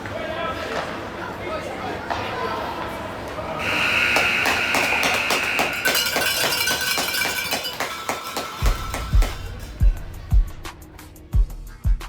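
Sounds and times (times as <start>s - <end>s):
arena horn high tone: 3.6s - 8.1s
music with deep thumping beat: 8.6s - 12.0s.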